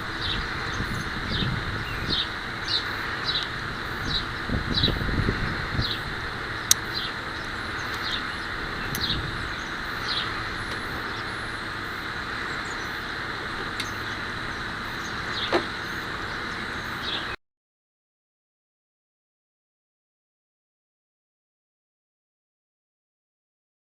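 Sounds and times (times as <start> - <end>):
bird chirping: 0.0 - 17.4.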